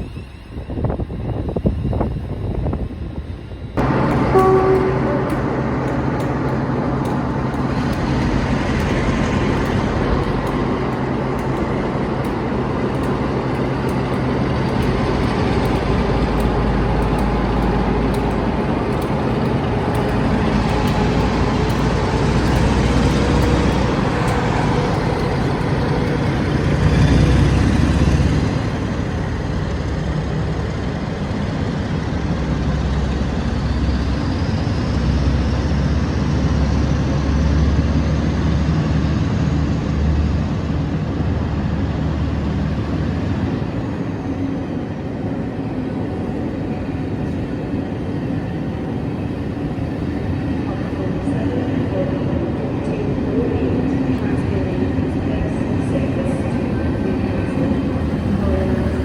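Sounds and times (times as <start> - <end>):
train rumbling: 0.0 - 59.0
low engine hum: 3.8 - 44.5.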